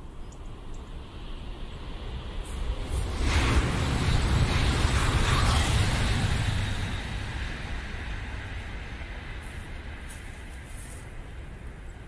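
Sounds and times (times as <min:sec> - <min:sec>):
train rumbling across a bridge: 0:00.5 - 0:12.0.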